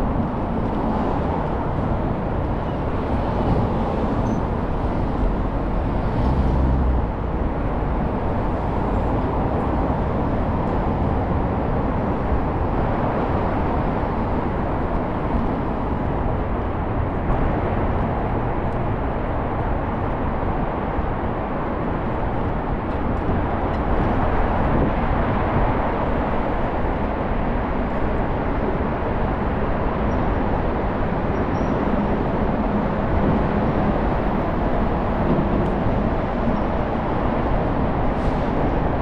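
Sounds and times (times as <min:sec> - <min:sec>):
scooter wind and road rumble: 0:00.0 - 0:39.0.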